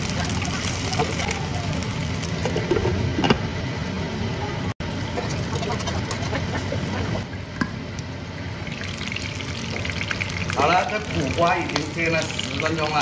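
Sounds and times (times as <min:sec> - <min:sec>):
food sizzling in oil: 0:00.0 - 0:02.8, 0:08.6 - 0:13.0.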